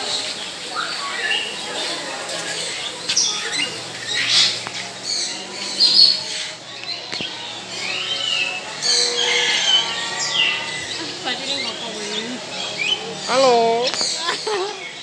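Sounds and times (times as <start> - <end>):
birds chirping and squawking: 0.0 - 15.0.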